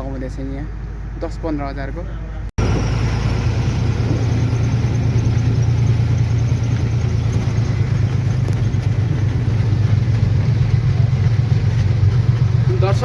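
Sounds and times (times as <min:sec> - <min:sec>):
truck engine running: 0:02.6 - 0:13.0.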